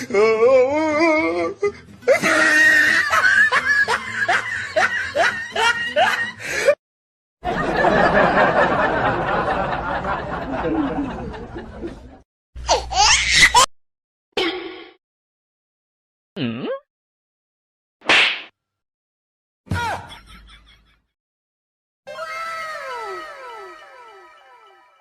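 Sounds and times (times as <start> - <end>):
snickering laughter: 2.1 - 6.4.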